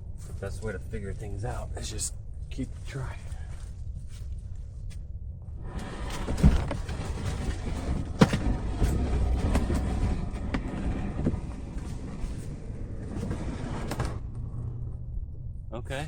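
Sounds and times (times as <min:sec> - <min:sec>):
kayak cart scraping and rolling: 0:05.6 - 0:14.2.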